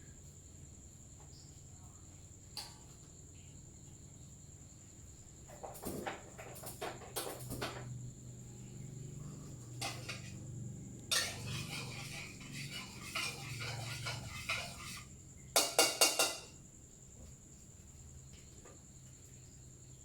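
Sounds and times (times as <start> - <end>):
utensils clattering against dishes: 9.7 - 16.6
sharp knocks on pan rim: 15.6 - 16.5.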